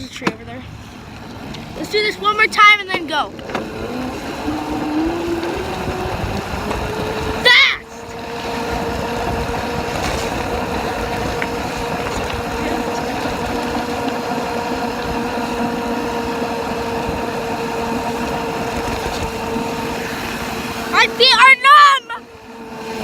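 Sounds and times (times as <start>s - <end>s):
dirt bike engine running: 0.0s - 23.0s
wind noise on microphone: 3.5s - 20.9s.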